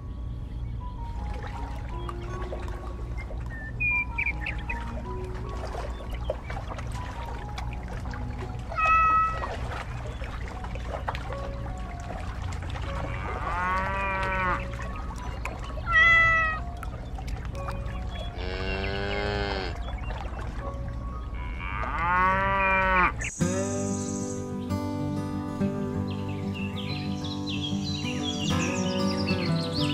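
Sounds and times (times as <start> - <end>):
music: 0.0 - 29.9
cat meowing: 8.7 - 9.5, 15.9 - 16.6
cow mooing: 13.0 - 14.7, 18.3 - 19.8, 21.4 - 24.0.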